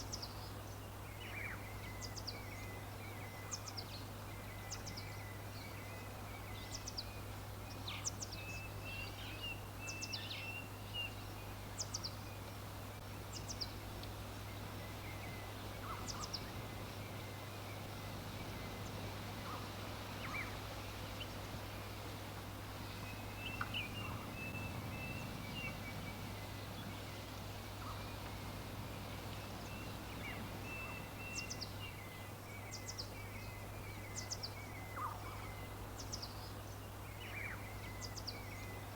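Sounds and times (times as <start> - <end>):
background hiss: 0.0 - 38.9
wild birds chirping: 0.0 - 38.9
steady low hum: 12.4 - 32.6.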